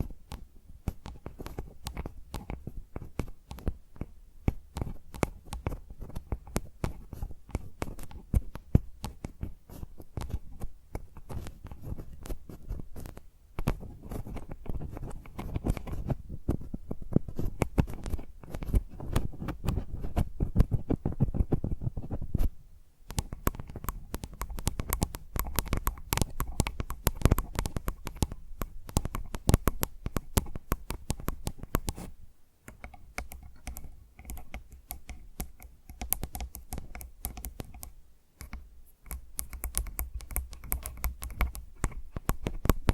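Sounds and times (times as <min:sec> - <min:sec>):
fingernails tapping on microphone: 0:00.0 - 0:22.5, 0:23.1 - 0:42.9.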